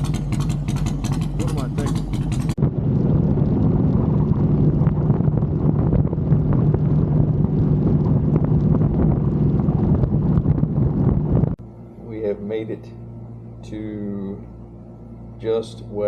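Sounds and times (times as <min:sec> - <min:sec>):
wind buffeting microphone: 0:00.0 - 0:11.6
motorcycle engine running: 0:00.0 - 0:16.0.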